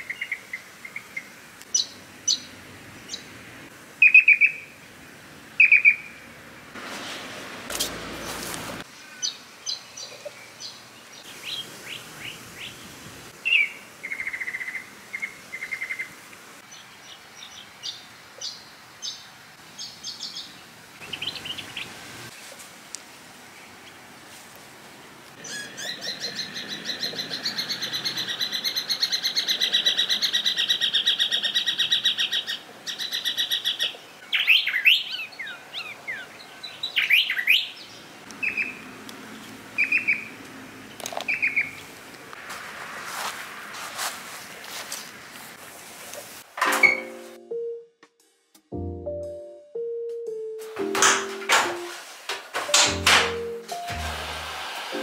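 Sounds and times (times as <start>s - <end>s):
birds chirping: 8.1s - 22.0s, 25.4s - 41.9s.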